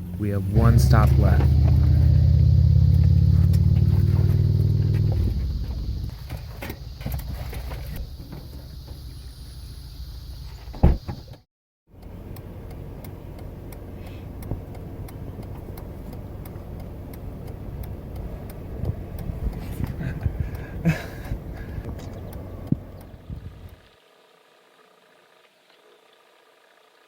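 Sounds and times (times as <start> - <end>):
car driving low rumble: 0.0 - 24.0
loud thump: 10.7 - 11.3.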